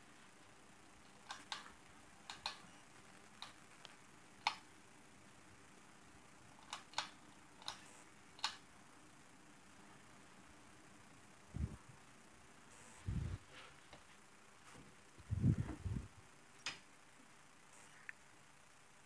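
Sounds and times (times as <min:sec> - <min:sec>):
ceiling fan humming: 0:00.0 - 0:19.0
sharp clicks: 0:01.1 - 0:02.6, 0:03.4 - 0:04.7, 0:06.6 - 0:08.6.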